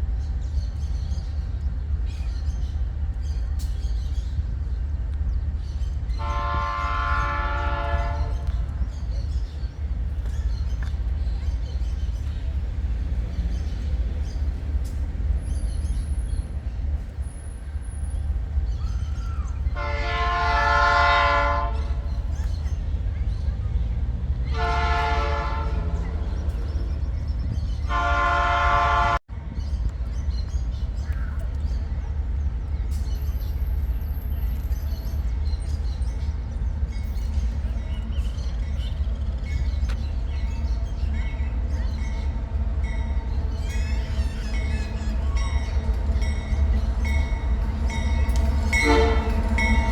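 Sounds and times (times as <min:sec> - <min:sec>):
birds chirping: 0:00.0 - 0:49.9
freight train rumbling past: 0:00.0 - 0:49.9
locomotive air horn blast: 0:06.2 - 0:08.6, 0:19.8 - 0:22.1, 0:24.5 - 0:26.3, 0:27.9 - 0:29.2, 0:48.7 - 0:49.9.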